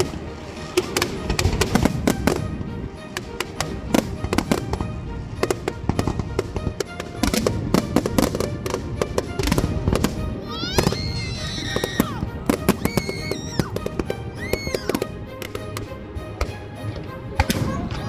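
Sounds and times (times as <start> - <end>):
fireworks bangs and crackles: 0.0 - 18.0
music: 0.0 - 18.0
whistling firework tone: 9.0 - 15.8.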